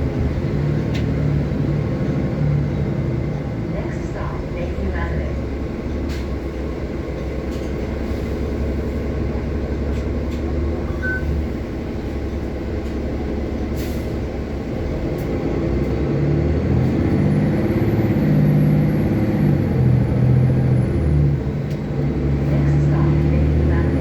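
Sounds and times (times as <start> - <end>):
bus engine and road noise: 0.0 - 24.0
short high beep: 10.9 - 11.4.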